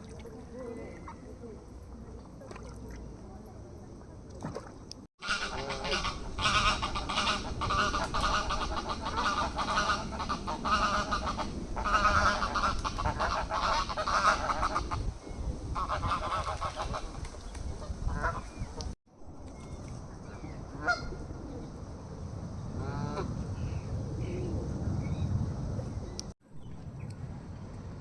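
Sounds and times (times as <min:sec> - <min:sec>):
waterfowl honking: 0:05.2 - 0:15.0, 0:15.8 - 0:17.2, 0:18.1 - 0:18.6, 0:20.8 - 0:21.1.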